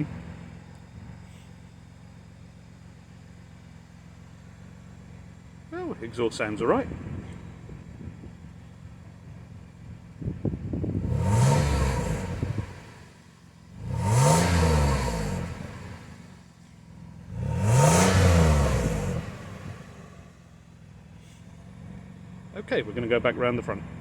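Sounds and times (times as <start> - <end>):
car engine revving: 10.2 - 24.0.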